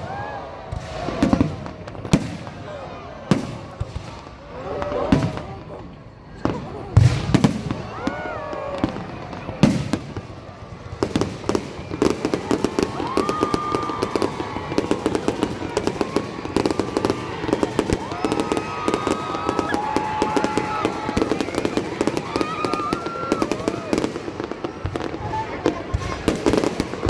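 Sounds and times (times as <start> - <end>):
fireworks crackling: 0.0 - 5.8, 6.4 - 27.0
firework bang: 7.0 - 8.0.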